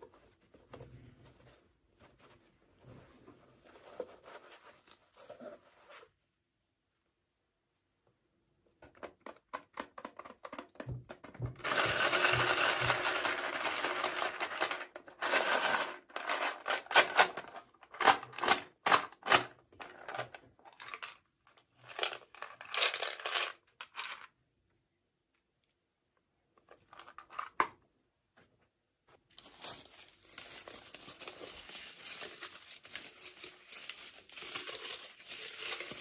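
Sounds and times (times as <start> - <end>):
small clicks and taps on packaging: 8.8 - 13.2
plastic packaging crinkling: 29.3 - 36.0
plastic packaging tearing: 29.4 - 36.0.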